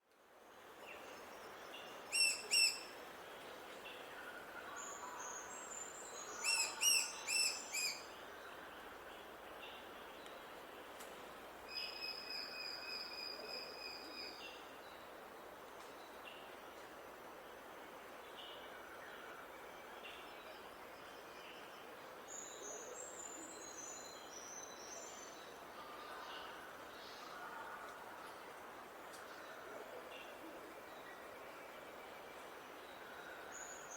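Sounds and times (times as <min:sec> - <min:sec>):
background hiss: 0:00.0 - 0:33.9.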